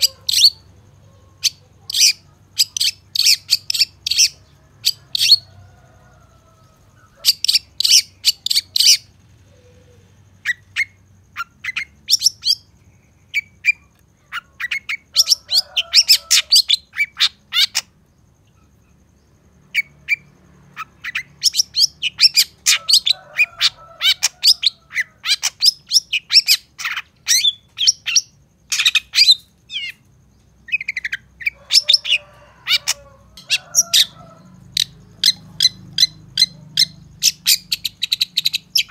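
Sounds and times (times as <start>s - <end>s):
low bird warbling: 0.0s - 5.5s.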